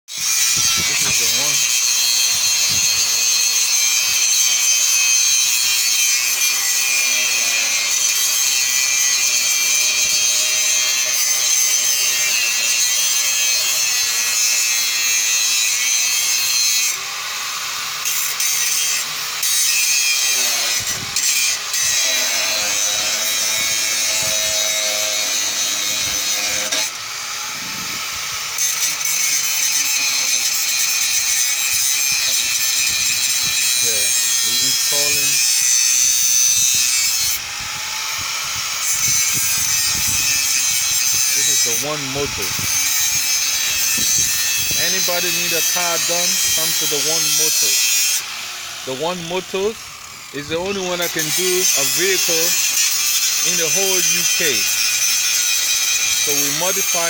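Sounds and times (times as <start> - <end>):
power tool grinding: 0.0 - 57.0.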